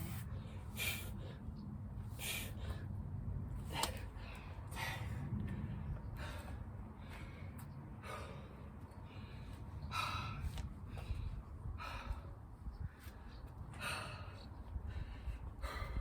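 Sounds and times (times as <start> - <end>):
person gasping heavy breaths: 3.6 - 12.4, 13.7 - 16.0.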